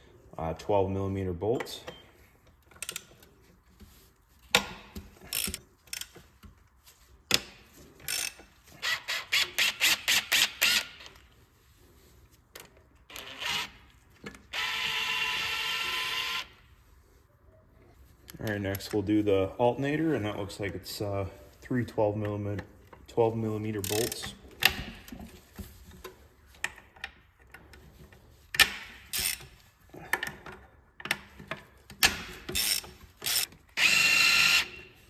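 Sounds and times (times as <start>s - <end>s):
power tool whirring: 13.1s - 13.8s, 14.5s - 16.5s, 32.6s - 35.0s.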